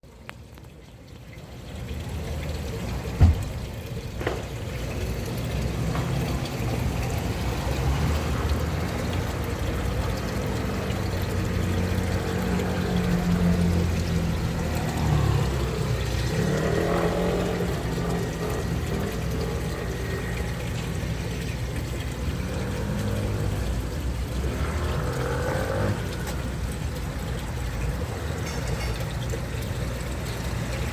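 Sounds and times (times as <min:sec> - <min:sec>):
water pouring and splashing: 0:00.0 - 0:30.9.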